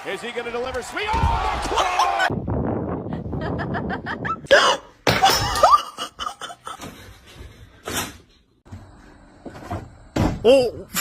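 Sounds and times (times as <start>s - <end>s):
person laughing: 3.1s - 7.0s.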